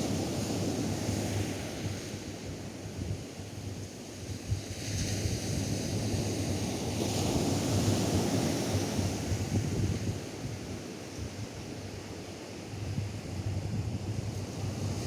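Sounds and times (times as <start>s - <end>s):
surf washing on sand: 0.0s - 15.0s
wind buffeting microphone: 7.2s - 12.0s, 12.8s - 15.0s.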